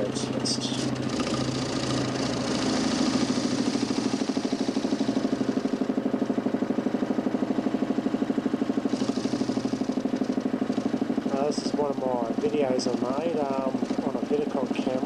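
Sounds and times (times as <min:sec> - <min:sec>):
electric motor humming with pulse: 0:00.9 - 0:11.3.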